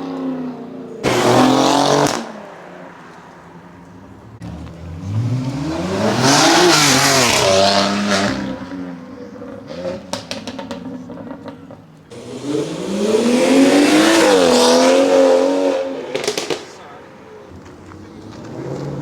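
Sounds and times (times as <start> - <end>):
car engine revving hard: 1.0 - 2.4, 4.7 - 8.8, 12.1 - 16.6
sharp exhaust cracks: 16.0 - 16.9.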